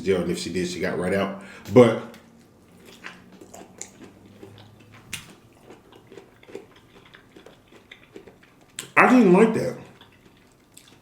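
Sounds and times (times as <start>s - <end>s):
person chewing food: 1.6s - 9.0s, 9.6s - 11.0s
wet mouth clicks and smacks: 2.1s - 9.0s.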